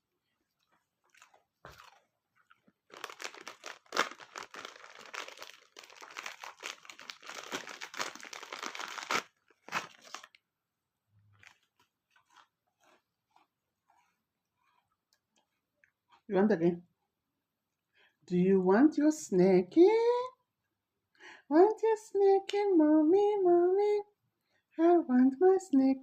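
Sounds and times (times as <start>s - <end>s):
dog crunching a treat: 0.7s - 10.4s, 11.3s - 16.3s.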